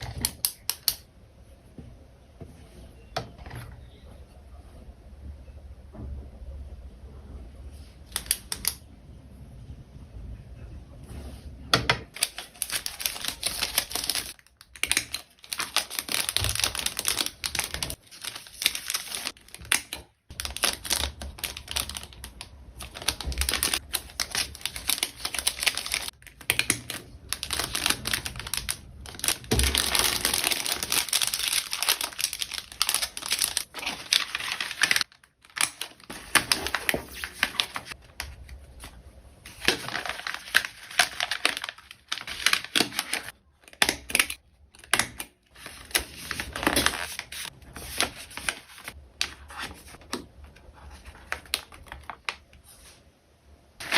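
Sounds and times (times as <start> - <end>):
plastic packaging crinkling: 12.1 - 38.9, 39.5 - 52.6.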